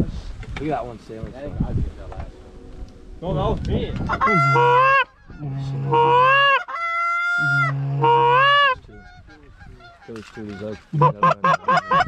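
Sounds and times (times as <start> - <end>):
goose call honks: 4.1 - 12.0.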